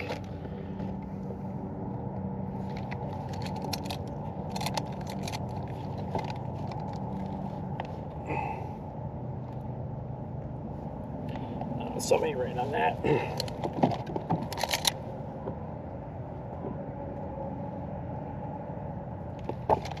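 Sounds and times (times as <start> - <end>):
fishing gear clicking and rattling: 0.0 - 1.1, 2.5 - 8.2, 13.1 - 15.0, 19.4 - 20.0
steady low rumble: 0.0 - 20.0.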